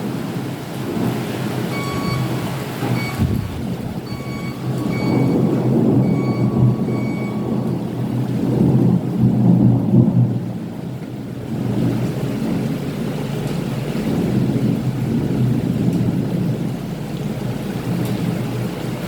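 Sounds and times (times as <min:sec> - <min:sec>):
steady rain: 0:00.0 - 0:19.0
thunder rumbling: 0:00.0 - 0:19.0
faint short high beeps: 0:01.8 - 0:02.3, 0:04.1 - 0:05.4.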